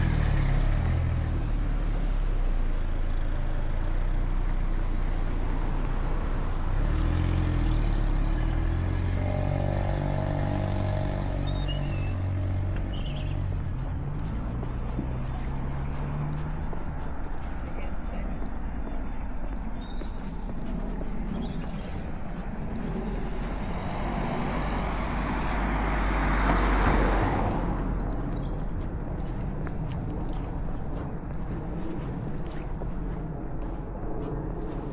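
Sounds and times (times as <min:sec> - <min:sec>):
large vehicle engine humming: 0:00.0 - 0:34.9
road traffic: 0:00.0 - 0:34.9
bird chirping: 0:11.4 - 0:13.6, 0:18.7 - 0:22.1.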